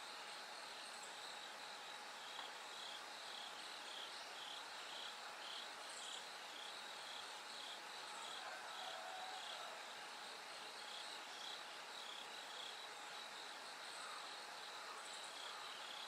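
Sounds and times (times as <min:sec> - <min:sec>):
pulsed cricket chirp: 0:00.0 - 0:16.0.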